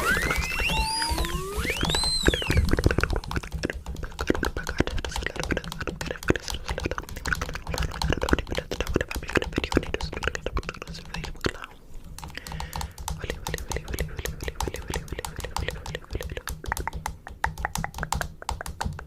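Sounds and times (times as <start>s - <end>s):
rapid clicks and taps: 0.0s - 19.0s.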